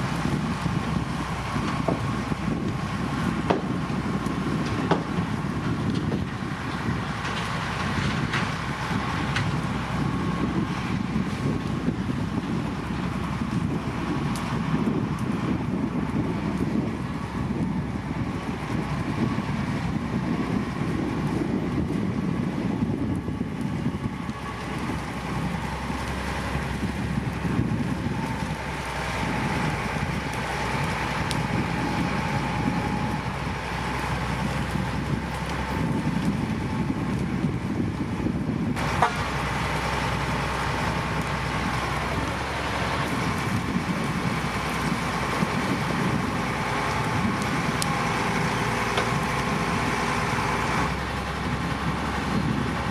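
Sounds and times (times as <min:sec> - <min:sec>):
heavy diesel machinery running: 0:00.0 - 0:52.9.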